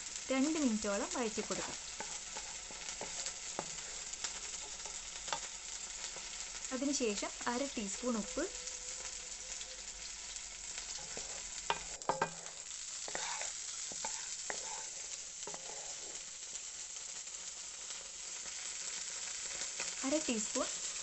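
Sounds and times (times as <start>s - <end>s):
food sizzling in hot oil: 0.0s - 21.0s
wooden spatula scraping a pan: 0.6s - 6.4s, 10.7s - 16.4s.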